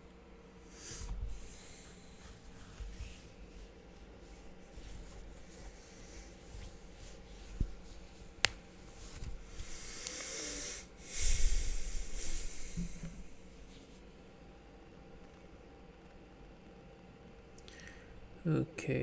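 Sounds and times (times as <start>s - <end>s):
soft breathy hiss: 0.6s - 14.5s, 17.5s - 19.0s.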